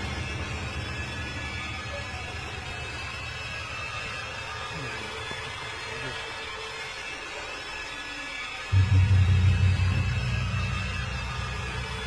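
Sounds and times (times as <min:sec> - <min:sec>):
deep low rumble: 0:08.8 - 0:12.0.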